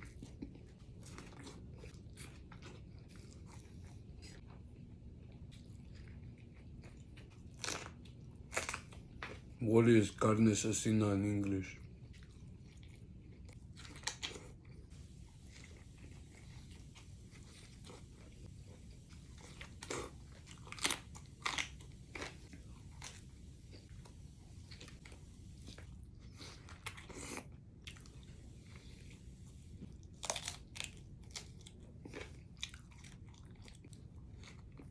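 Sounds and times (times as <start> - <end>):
crunchy chewing: 0.0 - 9.6, 11.8 - 34.9
low steady hum: 0.0 - 34.9.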